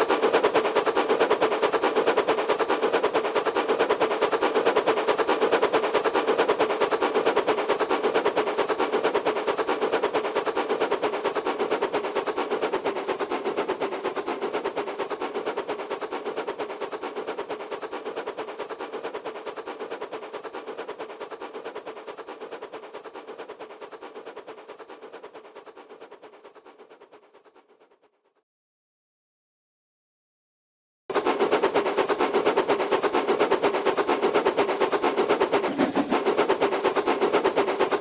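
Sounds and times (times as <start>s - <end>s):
train engine pulsing: 31.1s - 38.0s.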